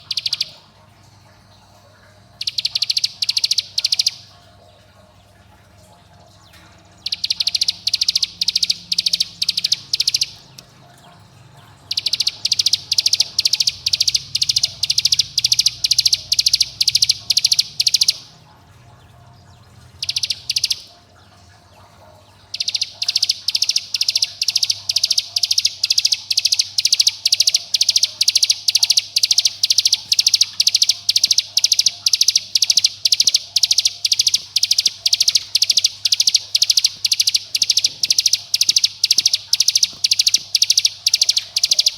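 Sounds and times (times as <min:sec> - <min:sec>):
bird calling in rapid runs: 0:00.0 - 0:00.7, 0:02.4 - 0:04.3, 0:07.0 - 0:10.7, 0:11.8 - 0:18.4, 0:19.9 - 0:20.9, 0:22.4 - 0:41.9.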